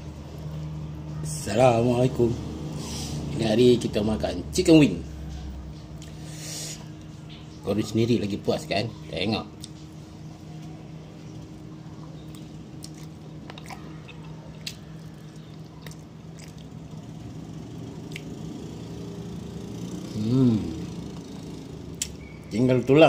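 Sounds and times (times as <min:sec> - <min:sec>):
steady low hum: 0:00.0 - 0:23.0
person chewing crispy chicken: 0:12.3 - 0:16.9
person humming mmm: 0:20.1 - 0:21.6.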